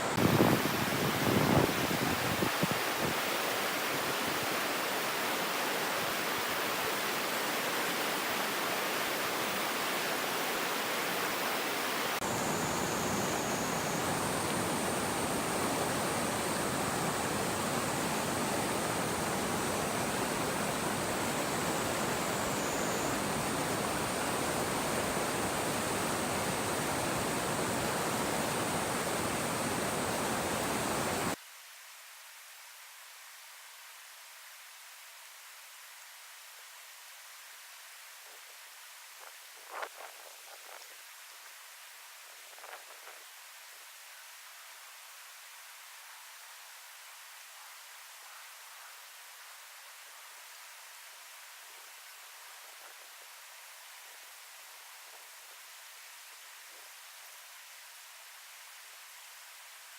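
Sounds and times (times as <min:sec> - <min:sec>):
stream water rushing over rocks: 0:00.0 - 0:31.4
thin high steady tone: 0:12.1 - 0:31.4.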